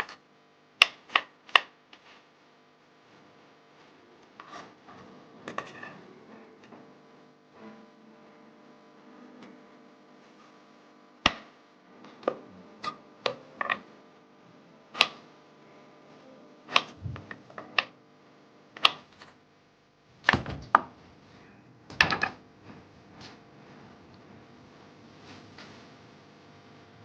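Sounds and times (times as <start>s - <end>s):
objects knocking and clacking: 21.9s - 22.4s.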